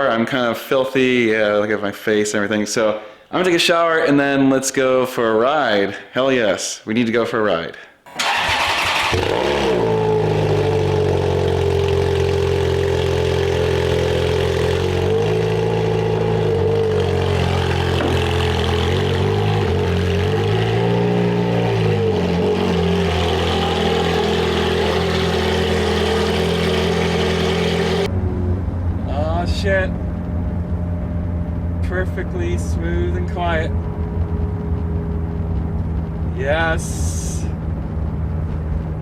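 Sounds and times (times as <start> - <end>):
car engine running at low revs: 9.1 - 39.0.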